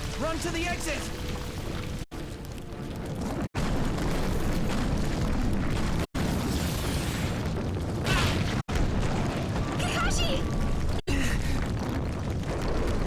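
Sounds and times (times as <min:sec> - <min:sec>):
rock crashing rumble: 0:00.0 - 0:13.0.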